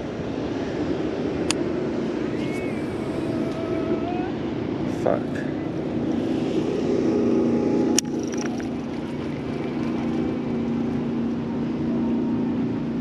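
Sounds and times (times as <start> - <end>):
outboard motor running: 1.6 - 13.0.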